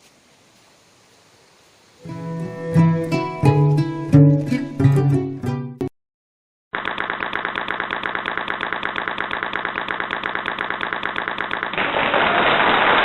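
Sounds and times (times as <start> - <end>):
steady static hiss: 0.0 - 2.5.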